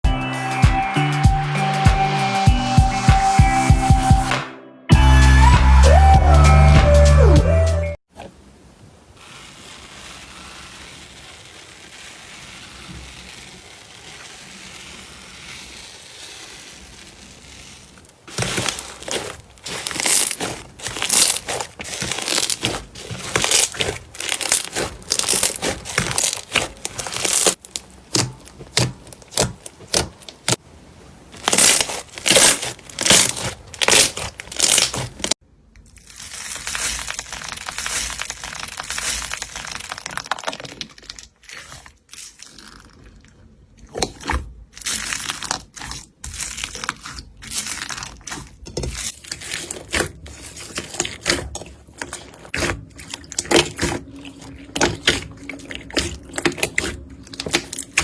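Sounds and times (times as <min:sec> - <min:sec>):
slime clicking and popping: 0:18.3 - 0:30.6.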